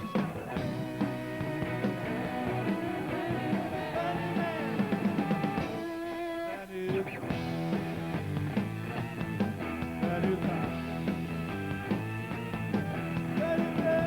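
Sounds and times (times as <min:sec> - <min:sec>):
drums beat: 0:00.0 - 0:14.0
electric guitar: 0:00.0 - 0:14.0.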